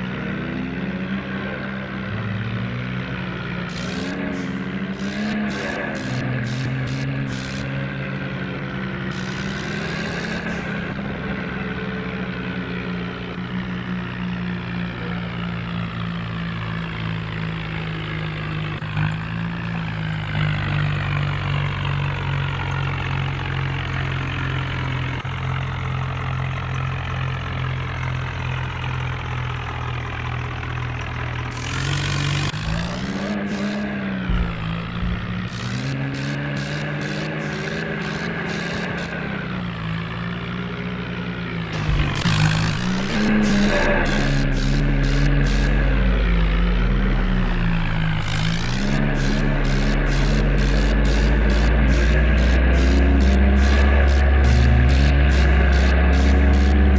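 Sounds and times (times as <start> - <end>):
tractor engine running: 0.0 - 56.9
sharp clicks: 3.7 - 7.8, 9.1 - 10.8, 31.5 - 39.4, 41.8 - 46.5, 47.9 - 56.9.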